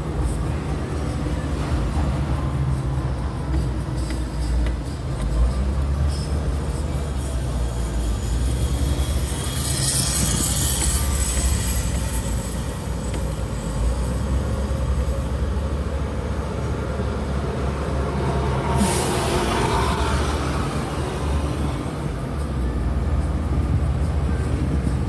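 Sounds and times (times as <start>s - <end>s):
traffic rumble on a bridge: 0.0s - 25.0s
rushing hiss: 18.5s - 21.3s.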